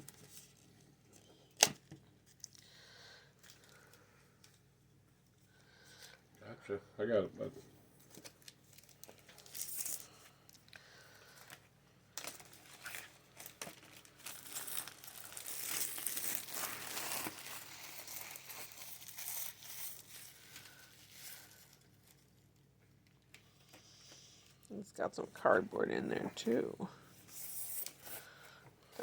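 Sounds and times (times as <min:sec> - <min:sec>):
plastic wrapping crinkling: 0:08.0 - 0:23.8.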